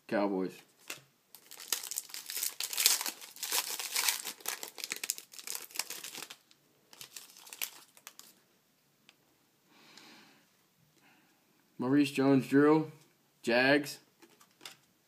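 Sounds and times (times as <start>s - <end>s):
foil wrapper crinkling and tearing: 0.8s - 8.3s.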